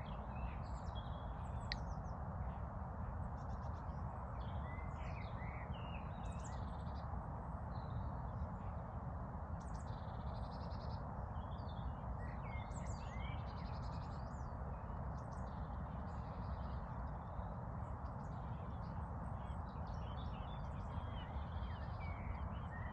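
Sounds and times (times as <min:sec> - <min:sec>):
songbirds chirping and trilling: 0:09.6 - 0:22.9.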